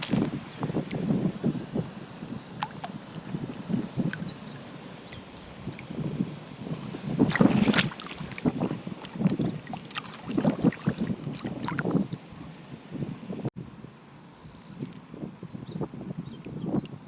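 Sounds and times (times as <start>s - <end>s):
water sloshing and splashing: 0.0s - 1.0s, 2.5s - 12.2s.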